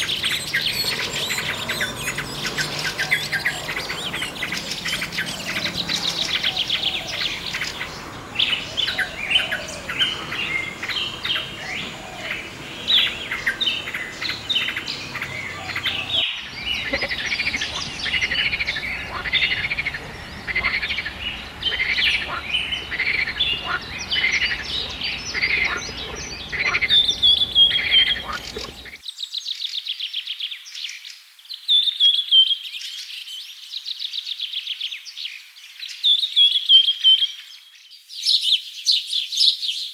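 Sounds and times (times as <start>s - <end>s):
many birds chirping: 0.0s - 29.0s.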